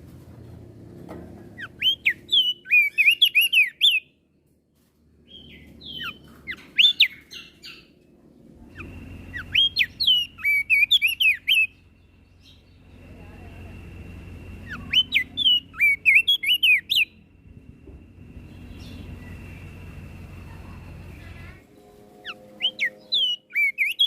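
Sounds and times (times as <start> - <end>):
bird singing sliding whistles: 1.6 - 4.0, 8.7 - 11.7, 14.6 - 17.2.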